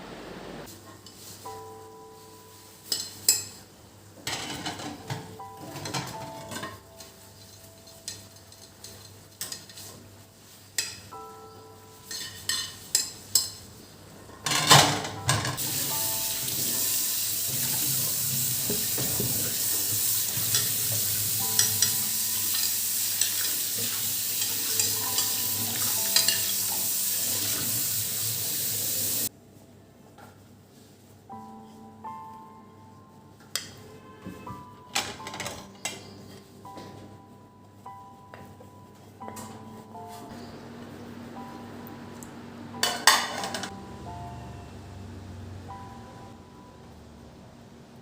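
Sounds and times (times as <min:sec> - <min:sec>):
dishes and cutlery clinking: 0:02.8 - 0:03.6, 0:04.2 - 0:10.1, 0:12.0 - 0:13.6, 0:14.3 - 0:16.0, 0:17.5 - 0:27.7, 0:42.8 - 0:43.8.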